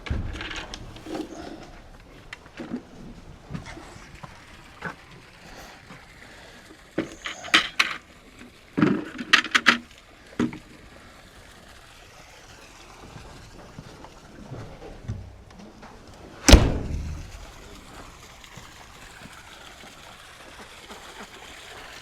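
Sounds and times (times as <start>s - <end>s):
sharp clicks and knocks: 0.0s - 3.8s, 7.0s - 8.0s, 8.8s - 10.6s, 16.5s - 18.0s.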